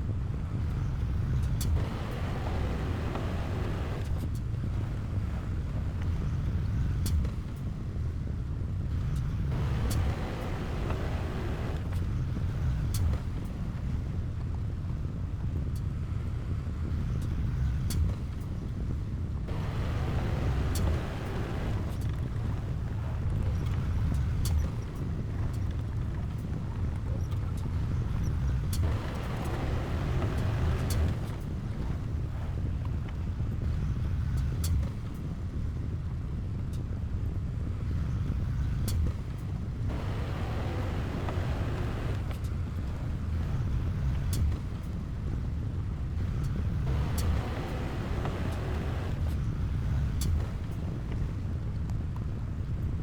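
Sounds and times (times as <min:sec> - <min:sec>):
heavy machinery diesel engine: 0:01.7 - 0:04.1, 0:09.5 - 0:12.0, 0:19.5 - 0:24.3, 0:27.9 - 0:32.7, 0:39.9 - 0:43.8, 0:46.5 - 0:49.4.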